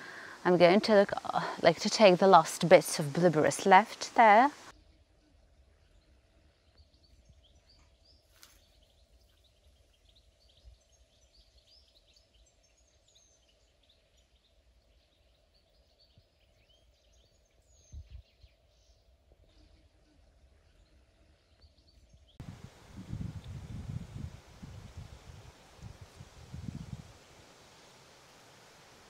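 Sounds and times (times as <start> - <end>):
faint birds chirping: 0.0 - 29.0.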